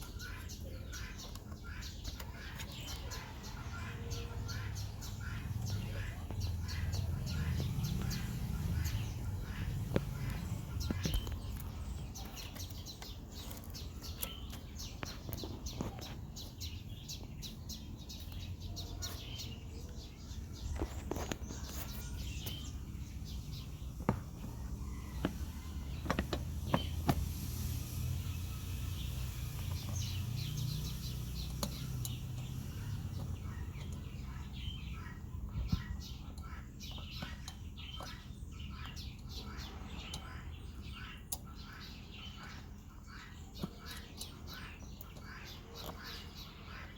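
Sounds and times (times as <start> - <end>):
birds chirping: 0.0 - 46.9
sharp clicks and knocks: 23.5 - 27.4.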